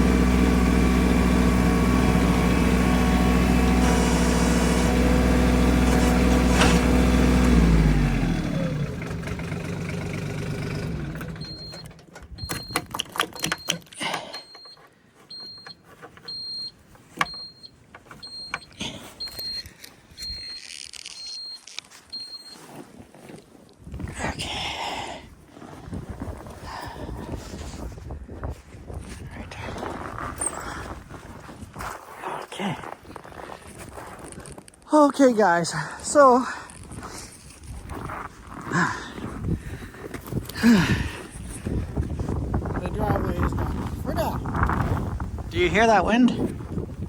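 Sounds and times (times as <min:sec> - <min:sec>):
tractor engine running: 0:00.0 - 0:14.6.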